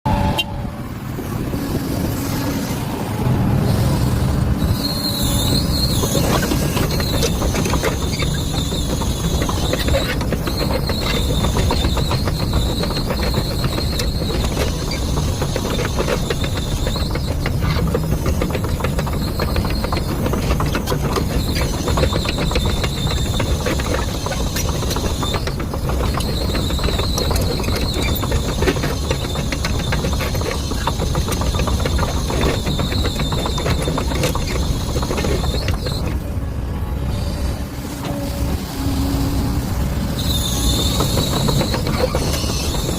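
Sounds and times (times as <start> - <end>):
excavator engine running: 0.1 - 42.9
high squeal from steel tracks: 0.1 - 42.9
rapid track clanking: 5.4 - 36.4, 39.6 - 42.9.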